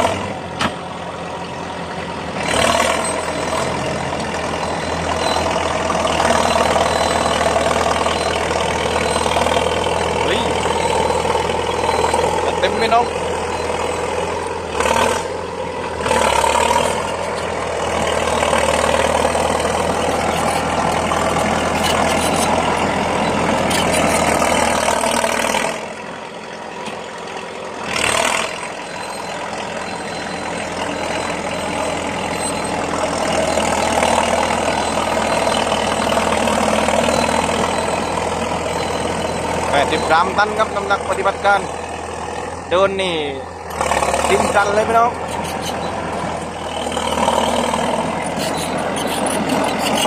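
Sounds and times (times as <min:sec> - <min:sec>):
bulldozer diesel engine running: 0:00.0 - 0:50.0.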